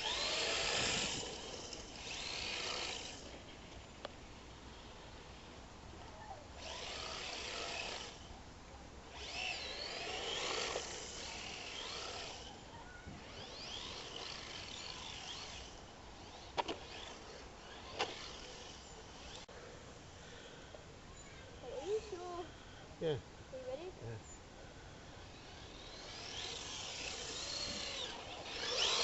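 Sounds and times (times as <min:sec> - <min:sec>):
toy car motor whine: 0:00.0 - 0:03.4, 0:06.6 - 0:08.3, 0:09.1 - 0:19.5, 0:25.1 - 0:29.0.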